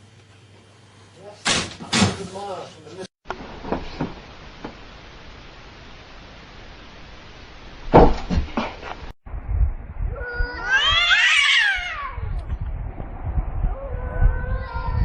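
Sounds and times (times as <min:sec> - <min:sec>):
cat yowling meow: 0:10.2 - 0:12.4, 0:13.7 - 0:15.0.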